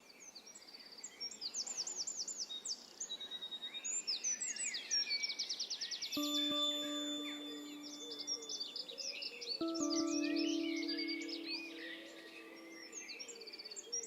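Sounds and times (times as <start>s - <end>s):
sustained musical note: 6.2s - 8.5s, 9.6s - 13.0s.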